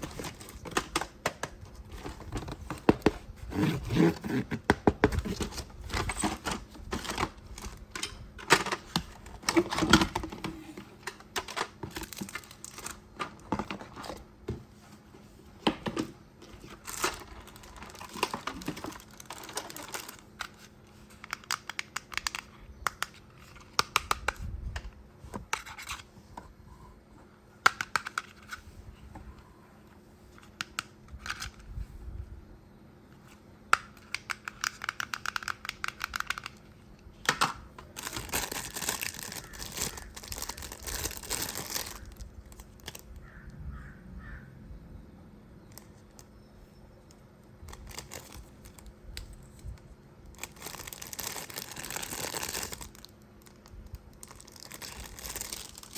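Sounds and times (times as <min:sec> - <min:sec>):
plastic packaging clicks and crinkling: 0:04.0 - 0:14.2, 0:15.6 - 0:26.1, 0:33.2 - 0:43.3, 0:47.0 - 0:55.9
packaging tearing: 0:38.0 - 0:43.0, 0:50.3 - 0:53.6, 0:54.2 - 0:55.9.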